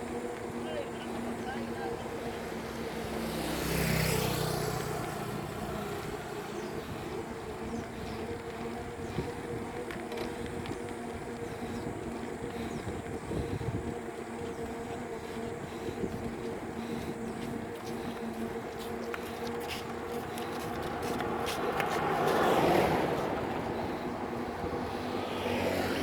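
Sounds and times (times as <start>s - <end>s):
low engine hum: 0.0s - 26.0s
road noise: 0.0s - 26.0s
vehicle passing close: 0.5s - 10.3s, 16.0s - 26.0s.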